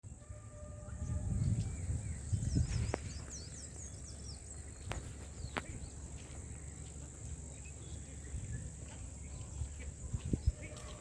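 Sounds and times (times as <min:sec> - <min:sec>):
crickets chirping: 0:00.1 - 0:11.0
bird chirps: 0:00.8 - 0:06.1.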